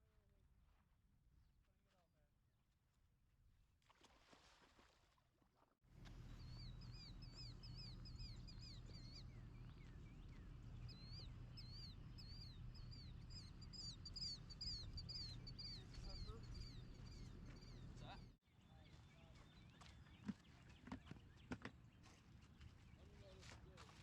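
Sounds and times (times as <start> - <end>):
small bird chirping: 6.0 - 21.4.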